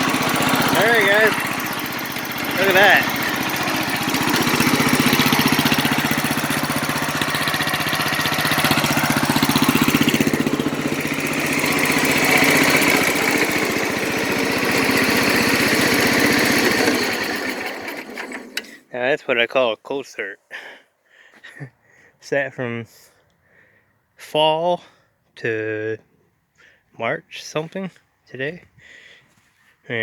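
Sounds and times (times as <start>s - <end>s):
engine idling: 0.0s - 18.7s.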